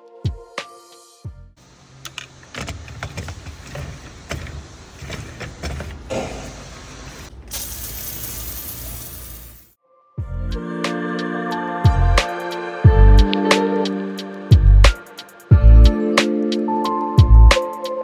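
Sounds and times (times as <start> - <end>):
sprayer handling clicks and knocks: 2.0 - 6.1
steady spray hiss: 6.1 - 9.8.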